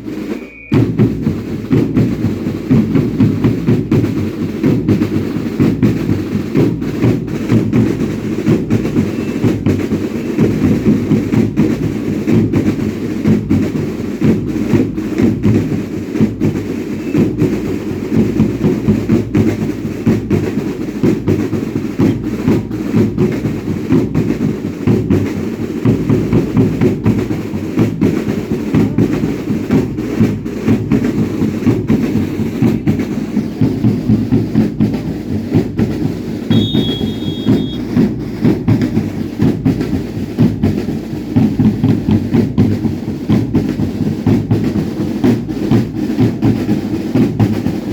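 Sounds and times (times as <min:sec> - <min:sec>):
drums beating a rhythm: 0:00.0 - 0:47.9
high whistle-like note: 0:00.3 - 0:00.8, 0:36.5 - 0:37.8.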